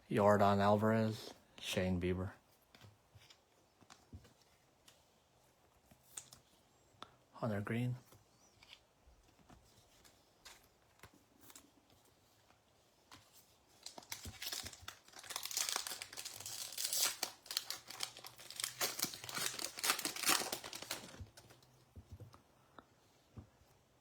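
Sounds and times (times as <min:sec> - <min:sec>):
foil wrapper tearing and crinkling: 0:13.8 - 0:21.6.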